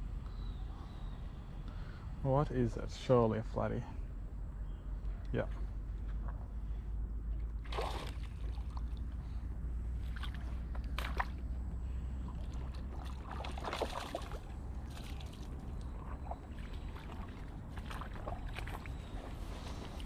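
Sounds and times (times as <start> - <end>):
water sloshing and splashing: 7.4 - 20.0.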